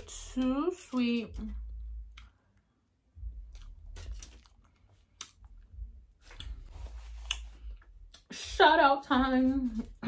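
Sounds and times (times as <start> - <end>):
person chewing soft food: 1.8 - 8.3.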